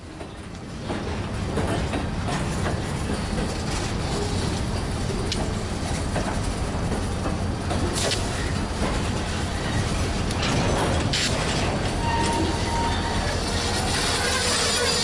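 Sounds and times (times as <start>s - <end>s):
steel wheels rumbling on rail: 0.0s - 15.0s
wheels clanking over rail joints: 6.1s - 15.0s.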